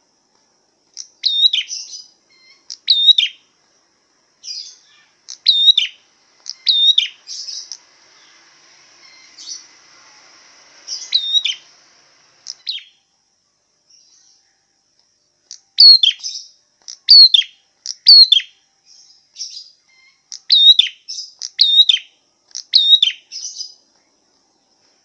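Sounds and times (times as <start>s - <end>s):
songbird chirping song: 0.0s - 25.0s.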